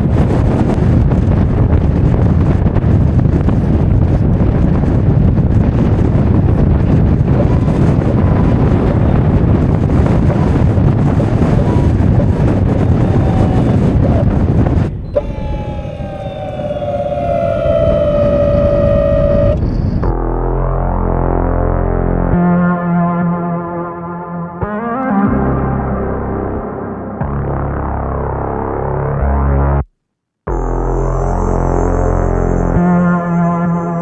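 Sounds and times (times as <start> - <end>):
wind buffeting microphone: 0.0 - 20.3
synthesizer tones gliding downward: 15.1 - 22.6.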